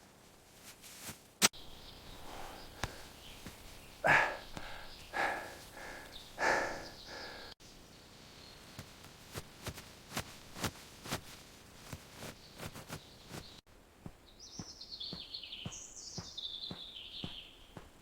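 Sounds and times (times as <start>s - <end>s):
bird singing warbling phrases: 1.6s - 7.6s, 14.3s - 17.9s.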